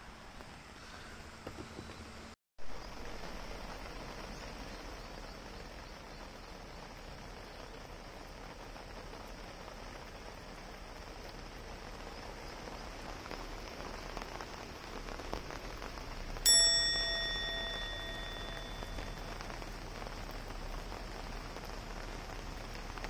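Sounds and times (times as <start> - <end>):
rain falling: 2.1 - 23.0
bell-like chime: 16.5 - 19.4.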